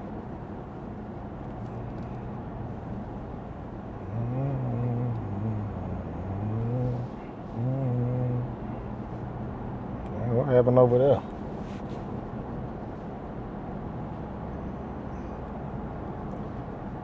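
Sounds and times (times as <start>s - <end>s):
road and tyre noise: 0.0s - 17.0s
wavering low tone: 4.0s - 8.6s.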